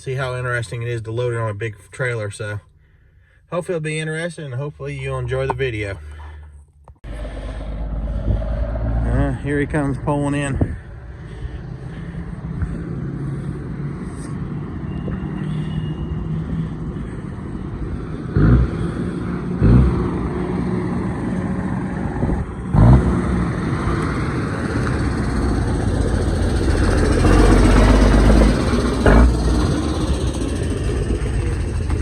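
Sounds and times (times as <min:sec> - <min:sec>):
truck engine running: 0:07.1 - 0:32.0.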